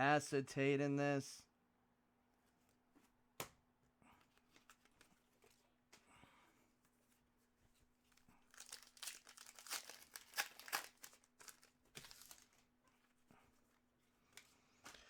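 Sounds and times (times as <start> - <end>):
foil wrapper tearing and crinkling: 8.4 - 12.7.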